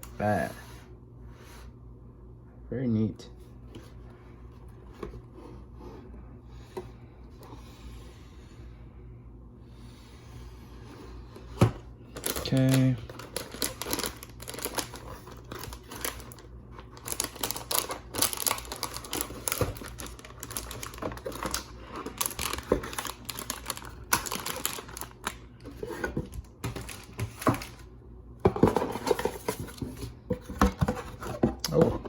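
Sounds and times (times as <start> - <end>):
packaging rustling and clicking: 11.6 - 27.9.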